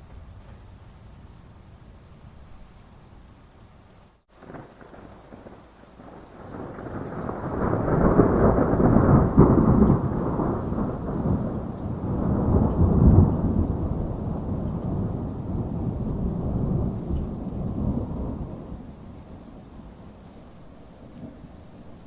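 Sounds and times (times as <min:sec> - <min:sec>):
steady rain: 0:00.0 - 0:22.0
rolling thunder: 0:04.4 - 0:22.0.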